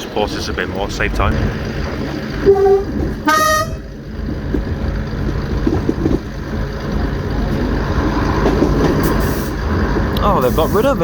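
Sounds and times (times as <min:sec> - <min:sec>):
track knocks: 0:00.0 - 0:10.3
train engine and wheels rumbling: 0:00.0 - 0:11.0
train horn blast: 0:02.4 - 0:03.9.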